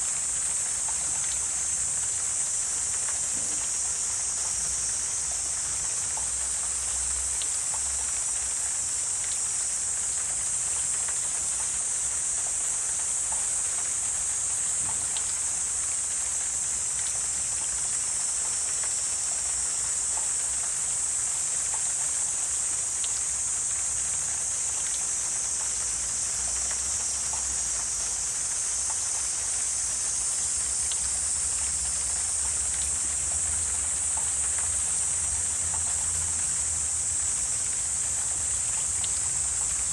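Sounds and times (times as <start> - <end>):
high-pitched insect chorus: 0.0 - 39.9
faint ticks: 2.9 - 9.5, 10.1 - 15.5, 16.1 - 23.3, 23.9 - 39.9.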